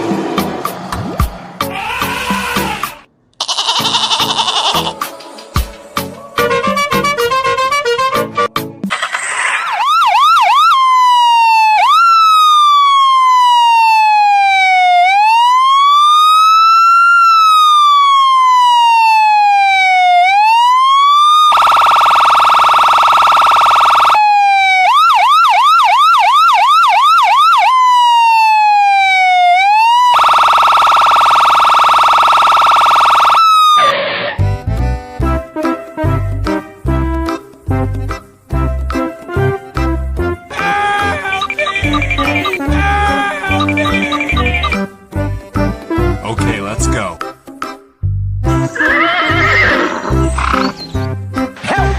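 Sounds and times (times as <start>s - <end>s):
harsh horn blast: 6.4s - 8.5s, 40.5s - 43.8s
emergency vehicle siren: 9.0s - 34.0s, 40.5s - 44.8s.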